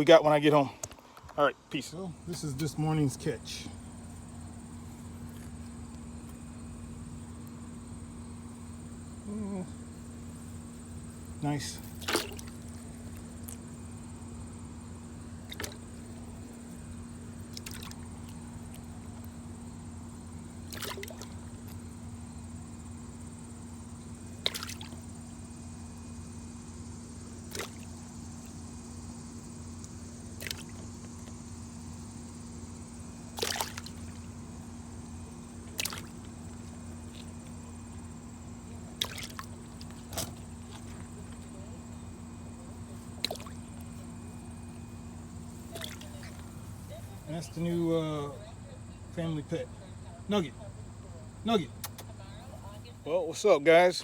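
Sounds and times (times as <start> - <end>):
steady low hum: 0.0 - 54.0
water splashes and drips: 11.7 - 13.6, 15.4 - 16.1, 17.4 - 19.3, 20.6 - 21.8, 24.4 - 25.1, 27.5 - 28.0, 30.4 - 31.4, 33.3 - 34.3, 35.6 - 37.6, 38.9 - 41.5, 43.2 - 43.6, 45.7 - 46.2.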